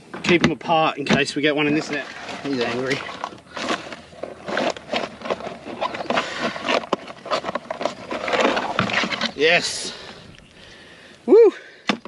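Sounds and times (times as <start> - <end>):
water splashing: 1.4 - 5.4
gear being handled: 1.8 - 9.6.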